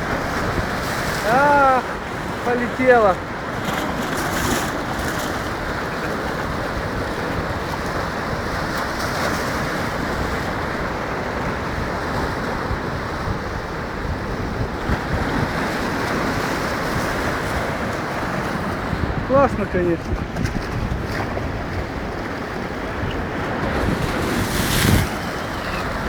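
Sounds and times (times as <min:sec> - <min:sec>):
waves breaking: 0:00.0 - 0:26.0
wind buffeting microphone: 0:00.0 - 0:26.0.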